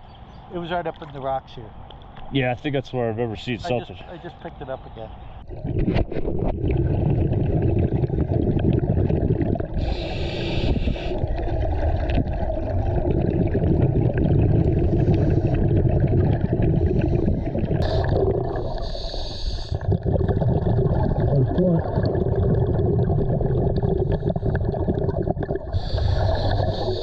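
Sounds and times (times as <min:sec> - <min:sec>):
underwater regulator bubbles gurgling: 0:05.4 - 0:27.0
regulator hiss: 0:09.8 - 0:11.2, 0:18.7 - 0:19.8.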